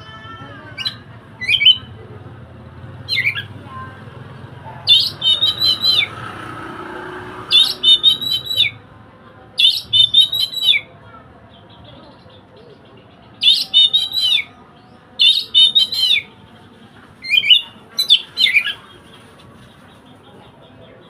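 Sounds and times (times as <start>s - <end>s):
bird singing: 0.0s - 2.0s, 3.0s - 3.6s, 4.8s - 6.3s, 7.5s - 8.8s, 9.6s - 10.9s, 11.5s - 21.0s.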